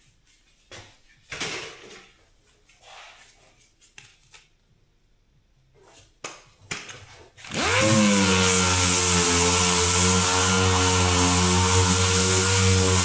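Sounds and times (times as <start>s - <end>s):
small electric motor running: 7.5s - 13.0s.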